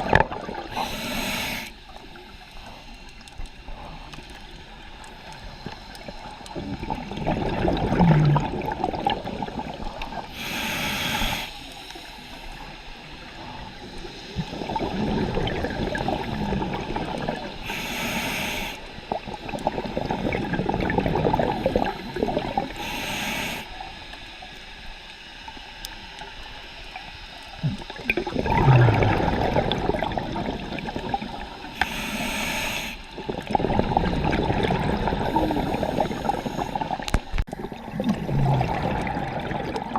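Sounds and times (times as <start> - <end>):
exhaled bubbles gurgling: 0.0 - 11.4, 13.1 - 23.8, 27.4 - 39.9
regulator hiss: 0.7 - 6.4, 10.2 - 14.8, 15.8 - 19.4, 21.4 - 27.9, 30.8 - 33.5, 35.0 - 37.4.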